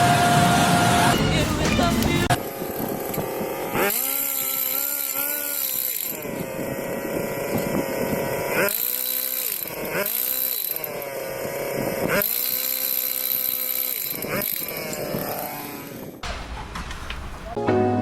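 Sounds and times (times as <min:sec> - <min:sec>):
small high-revving motor: 0:00.0 - 0:01.2, 0:02.0 - 0:16.2.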